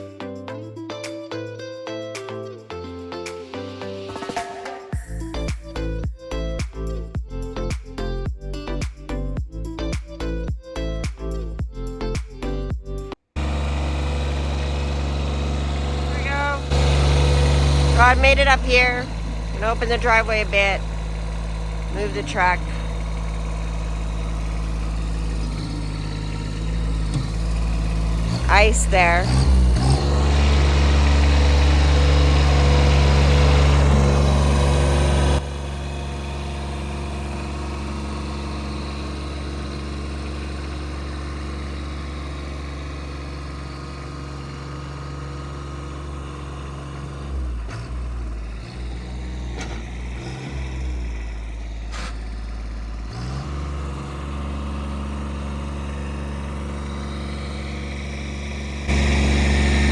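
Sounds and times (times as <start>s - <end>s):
vehicle engine idling: 13.4s - 59.9s.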